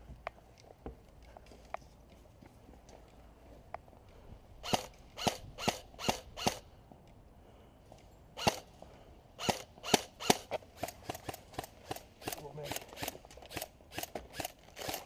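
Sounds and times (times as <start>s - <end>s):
airsoft rifle shots cracking: 8.4s - 8.7s.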